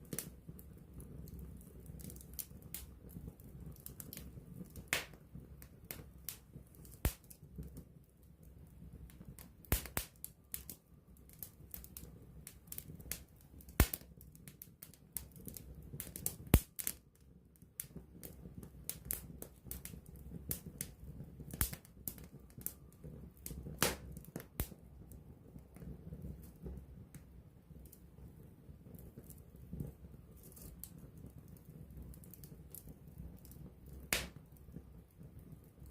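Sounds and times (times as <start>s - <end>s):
low rush of flames: 0.0s - 35.9s
wood fire crackling and popping: 0.0s - 35.9s.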